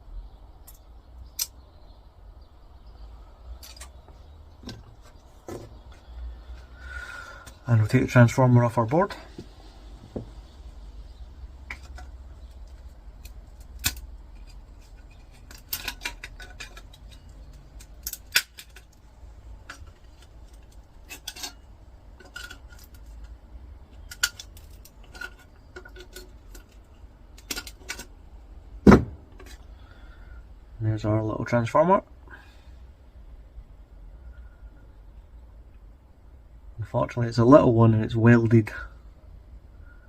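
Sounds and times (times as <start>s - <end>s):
metal parts clicking and clinking: 3.6s - 4.0s, 11.7s - 28.2s
louder knocks: 28.9s - 29.2s.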